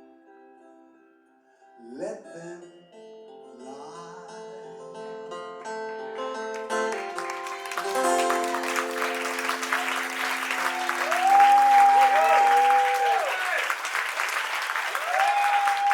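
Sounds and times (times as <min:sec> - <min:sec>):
guitars playing: 0:02.9 - 0:13.2
audience applause and cheering: 0:06.5 - 0:15.9.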